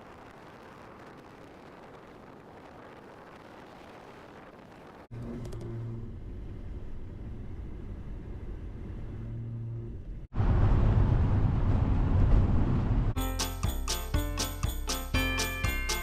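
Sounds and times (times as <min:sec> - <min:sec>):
road and engine rumble: 0:04.3 - 0:13.2
vehicle engine hum: 0:04.8 - 0:13.2.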